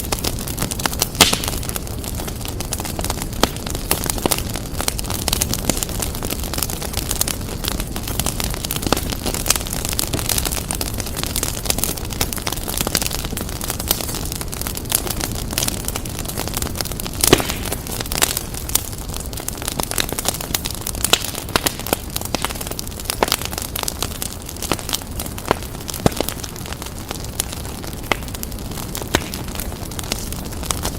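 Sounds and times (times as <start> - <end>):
fire crackling in a fireplace: 0.0 - 30.9.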